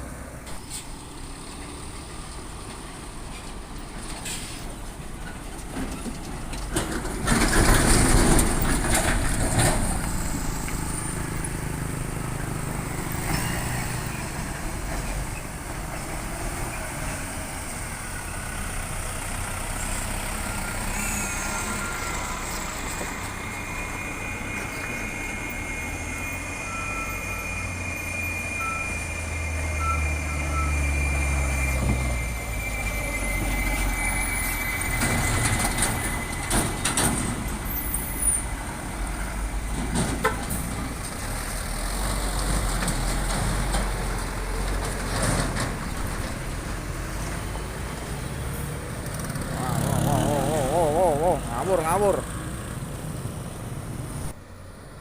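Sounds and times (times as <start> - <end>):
diesel truck engines droning: 0.0 - 55.0.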